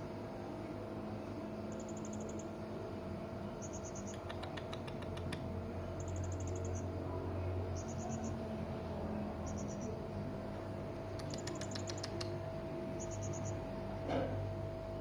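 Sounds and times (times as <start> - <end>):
steady low hum: 0.0 - 15.0
sharp clicks: 11.1 - 12.4.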